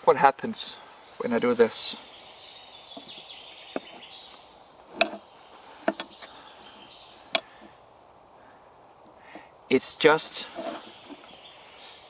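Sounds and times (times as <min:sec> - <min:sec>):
faint outdoor hiss: 0:00.0 - 0:12.0
axes knocking on wooden plank: 0:03.0 - 0:04.0, 0:04.9 - 0:05.2, 0:05.8 - 0:06.3.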